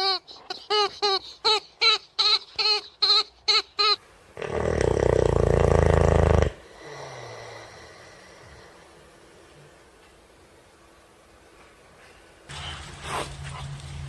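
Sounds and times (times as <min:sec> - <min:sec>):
animal high-pitched cries: 0:00.0 - 0:04.0.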